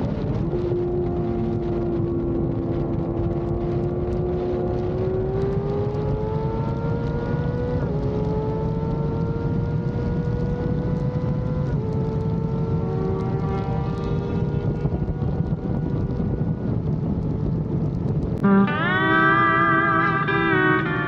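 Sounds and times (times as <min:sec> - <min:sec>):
low wind rumble: 0:00.0 - 0:21.0
motorcycle engine accelerating: 0:00.0 - 0:21.0.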